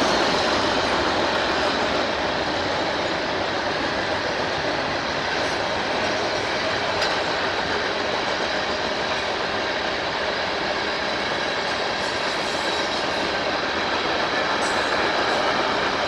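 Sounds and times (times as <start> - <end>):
train wheels on rails: 0.0 - 16.0.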